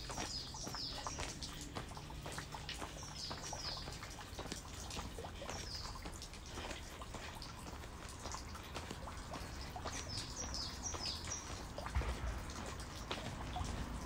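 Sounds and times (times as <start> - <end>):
shoes tapping on dirt path: 0.0 - 14.0
small birds downward chirps: 0.0 - 14.0
steady low rumble: 11.8 - 14.0.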